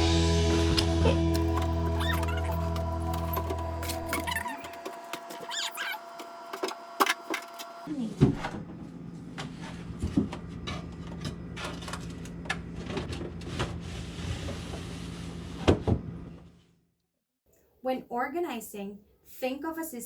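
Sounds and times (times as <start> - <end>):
background music: 0.0 - 4.2
objects being handled and set down: 1.3 - 7.8.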